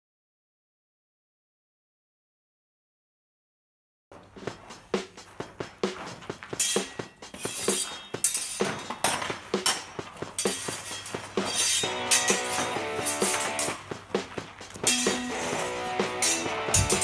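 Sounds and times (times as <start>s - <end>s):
background music with a beat: 4.2s - 17.0s
guitar: 5.6s - 17.0s
steel swords clinking: 6.6s - 13.9s, 14.7s - 17.0s.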